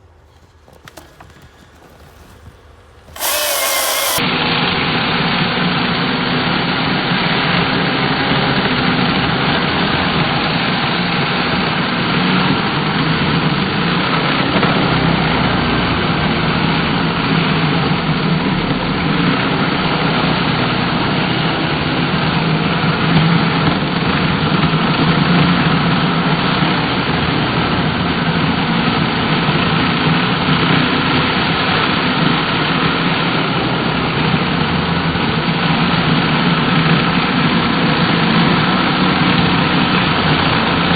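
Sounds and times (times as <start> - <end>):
chainsaw engine running: 0.2 - 4.2.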